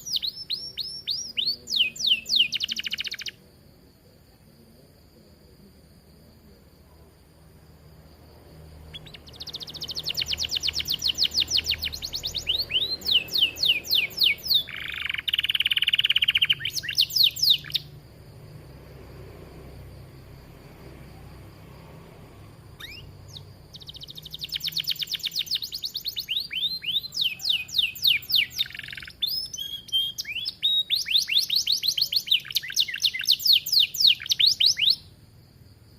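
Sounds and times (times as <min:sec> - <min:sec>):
canary singing trills: 0:00.0 - 0:03.4, 0:08.8 - 0:18.0, 0:22.7 - 0:35.2.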